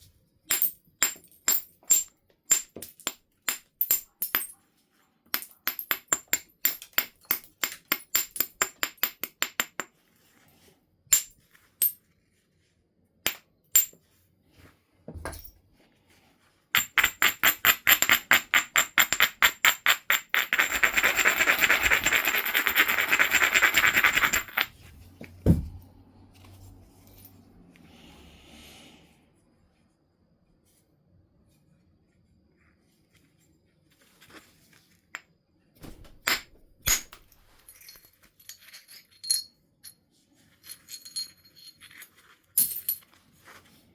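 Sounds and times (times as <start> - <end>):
stone rubbing: 16.8 - 24.8.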